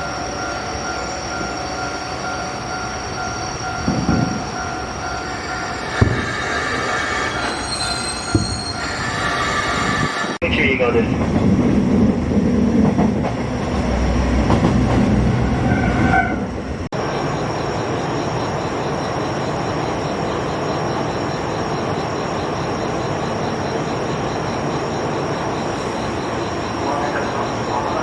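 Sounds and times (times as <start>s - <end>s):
train rumbling on rails: 0.0s - 28.0s
wheel squeal: 0.5s - 10.4s, 15.5s - 16.5s.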